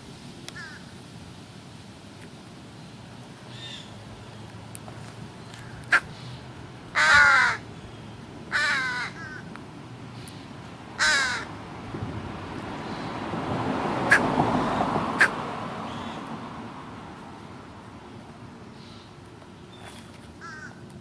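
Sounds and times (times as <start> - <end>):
broad rush of noise: 0.0 - 21.0
crow cawing: 0.6 - 0.8, 5.6 - 6.1, 6.9 - 7.6, 8.5 - 9.4, 11.0 - 11.5, 14.1 - 15.4, 20.4 - 20.8.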